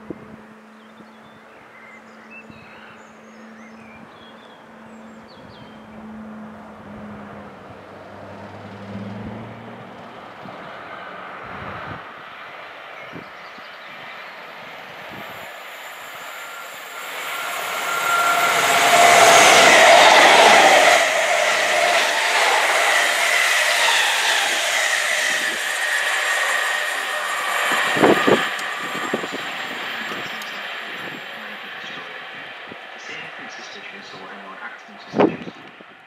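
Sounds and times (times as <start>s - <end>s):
train passing on rails: 0.0s - 36.0s
whining tones: 14.5s - 34.2s.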